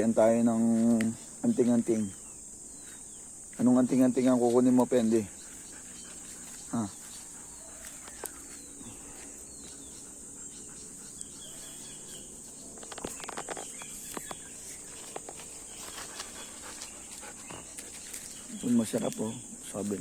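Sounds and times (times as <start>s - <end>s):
insects droning: 0.0s - 20.0s
crackling clicks: 12.8s - 15.6s.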